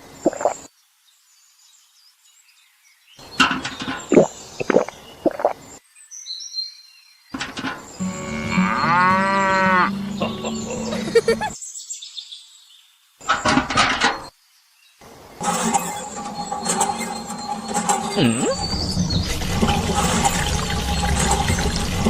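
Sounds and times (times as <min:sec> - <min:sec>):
clatters and knocks: 0:03.4 - 0:04.1, 0:07.4 - 0:07.9, 0:13.3 - 0:14.3
cow mooing: 0:08.0 - 0:11.3.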